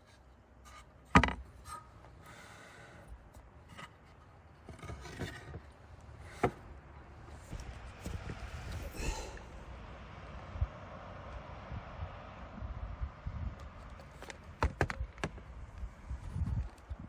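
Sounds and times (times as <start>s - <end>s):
scraping or rubbing: 0.0s - 6.6s.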